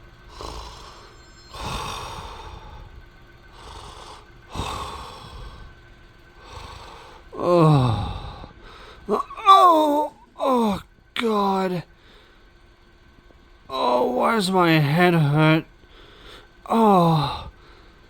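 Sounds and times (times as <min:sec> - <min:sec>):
person groaning: 0:00.3 - 0:02.9, 0:03.6 - 0:05.7, 0:06.4 - 0:11.8, 0:16.7 - 0:17.6
person breathing noisily: 0:00.3 - 0:10.8, 0:15.8 - 0:18.0.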